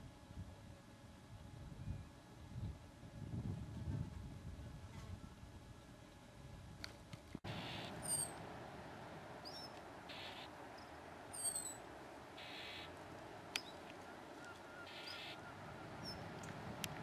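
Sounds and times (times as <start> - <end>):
small bird high sliding calls: 7.5 - 8.4, 9.4 - 11.8, 12.4 - 13.0, 14.4 - 16.3.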